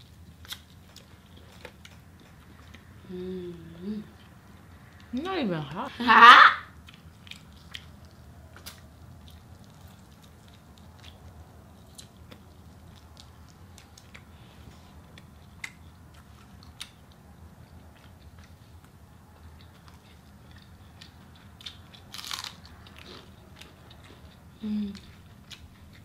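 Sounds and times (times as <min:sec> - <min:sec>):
faint low hum: 0:00.0 - 0:26.0
close chewing of chicken wings: 0:06.8 - 0:26.0.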